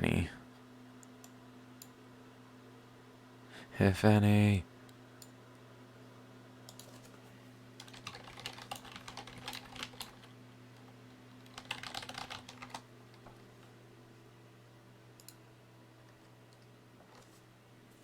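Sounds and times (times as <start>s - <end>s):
low steady hum: 0.0s - 18.0s
computer keyboard typing: 7.8s - 10.3s, 11.4s - 12.9s.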